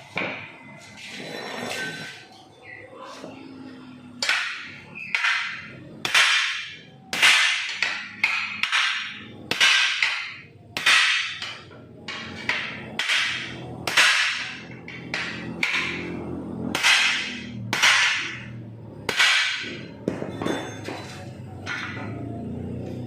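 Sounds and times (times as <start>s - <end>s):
hammer striking sheet metal: 4.2s - 21.0s.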